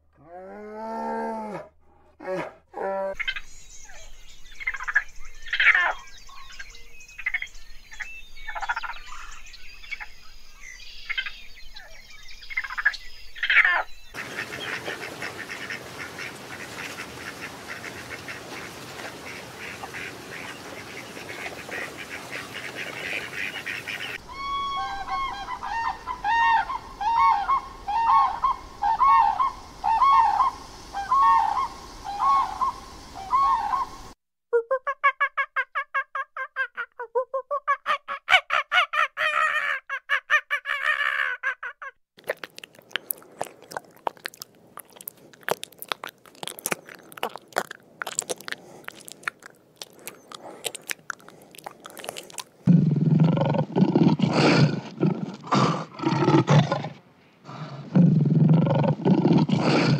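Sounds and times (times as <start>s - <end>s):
crane trumpeting calls: 14.2s - 30.5s
raccoons making sharp sounds: 42.2s - 56.7s.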